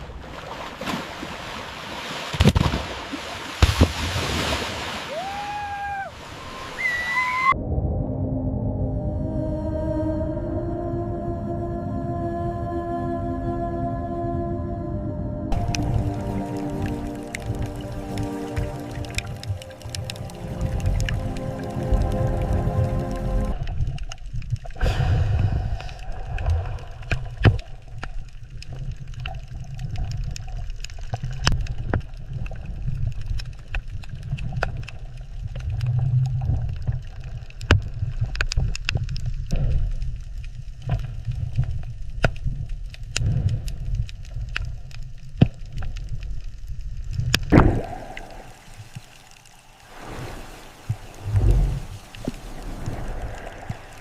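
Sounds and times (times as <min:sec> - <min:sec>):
underwater rumble of moving water: 0:00.0 - 0:54.0
sharp underwater clicks: 0:15.5 - 0:49.8.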